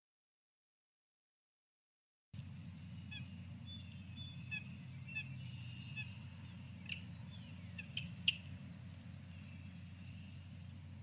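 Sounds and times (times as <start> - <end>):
steady low hum: 2.4 - 11.0
wild birds calling: 2.4 - 11.0.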